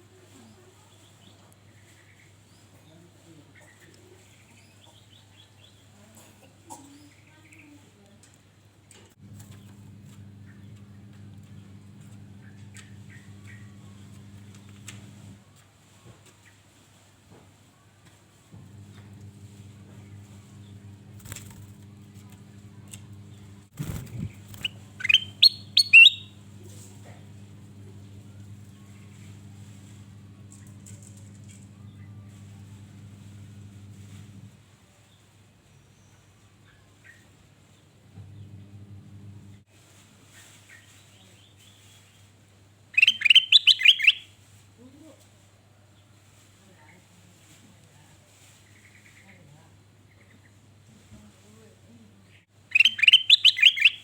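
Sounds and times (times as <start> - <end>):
steady low hum: 9.2 - 15.4, 18.6 - 34.6, 38.1 - 39.7
faint bird chirps: 22.5 - 31.0, 43.0 - 44.3, 52.7 - 54.0
bird whistling call: 24.6 - 26.4, 43.0 - 44.2, 52.7 - 54.0.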